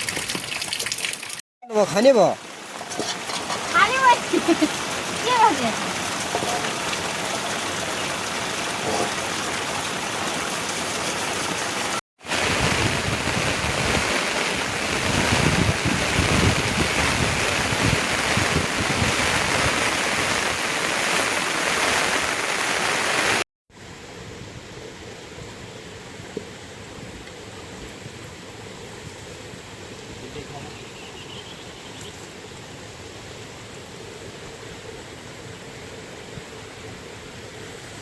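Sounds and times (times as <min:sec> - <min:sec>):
rushing water: 0:00.0 - 0:23.4.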